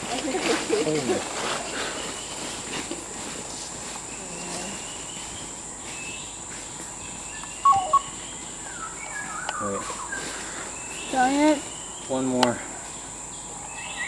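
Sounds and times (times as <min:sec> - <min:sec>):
insects droning: 0:00.0 - 0:14.0
sharp chirp-like calls: 0:07.0 - 0:14.0
falling whistled calls: 0:07.2 - 0:12.2.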